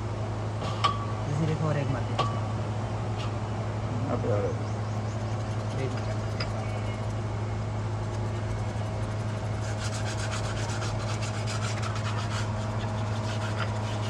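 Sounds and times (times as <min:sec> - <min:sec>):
fast rubbing strokes: 0:05.0 - 0:14.0.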